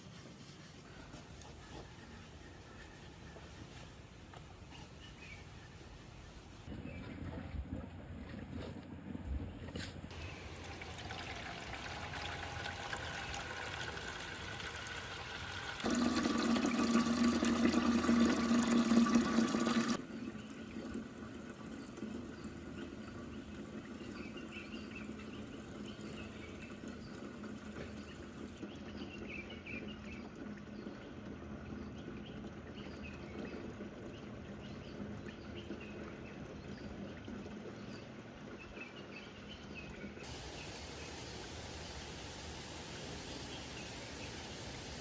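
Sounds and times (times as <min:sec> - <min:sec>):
water pouring: 0:10.1 - 0:38.6.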